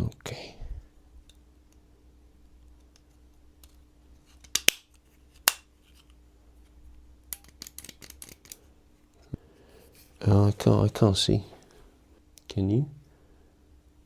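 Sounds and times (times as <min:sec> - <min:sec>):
hard parts clicking and snapping: 0:02.8 - 0:05.7, 0:07.3 - 0:08.6.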